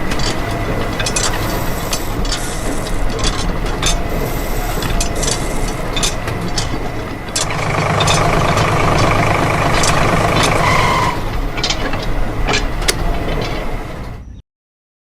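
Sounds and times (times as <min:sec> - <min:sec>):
small motor humming: 0:00.0 - 0:11.7
rising whine: 0:00.0 - 0:12.4
sharp clicks and knocks: 0:00.0 - 0:14.2.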